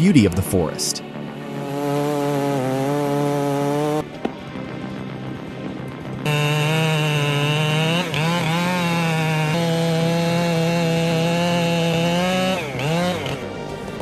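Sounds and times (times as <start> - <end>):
chainsaw engine at high revs: 1.4 - 4.0, 6.2 - 14.0.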